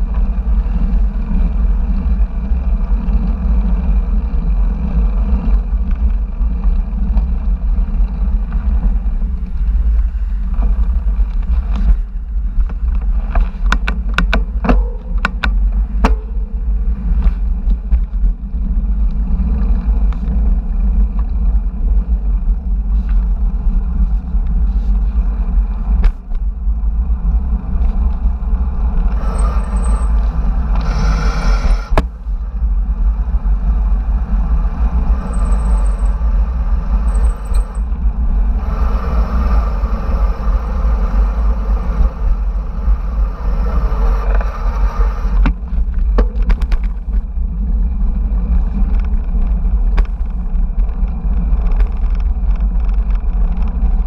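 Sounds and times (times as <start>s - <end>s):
bicycle road noise hiss: 0.0s - 54.0s
wind rumbling on microphone: 0.0s - 54.0s.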